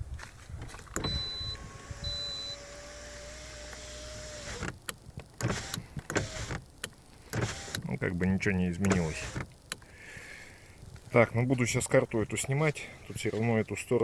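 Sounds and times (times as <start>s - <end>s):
power window motor whine: 0.9s - 7.8s.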